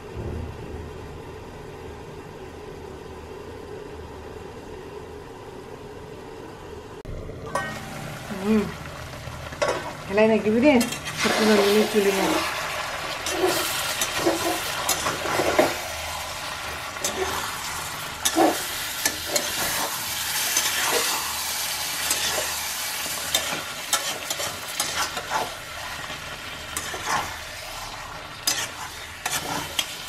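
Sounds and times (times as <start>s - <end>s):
food sizzling in a wok: 7.3s - 30.0s
metal spatula scraping pan: 13.2s - 15.9s, 26.7s - 27.8s, 28.4s - 30.0s.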